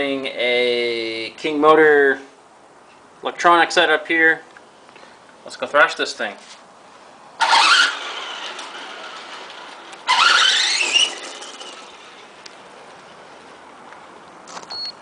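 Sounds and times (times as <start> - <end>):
electric motor whining: 10.0 - 12.2.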